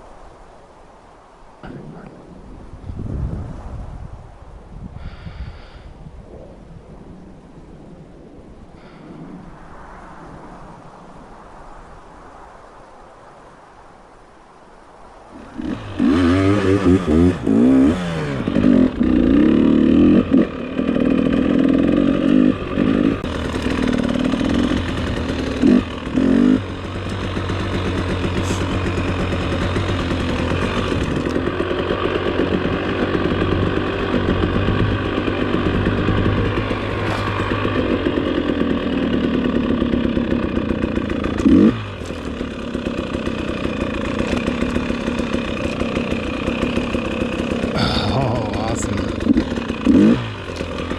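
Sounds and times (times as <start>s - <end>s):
dirt bike engine revving: 15.4s - 50.9s.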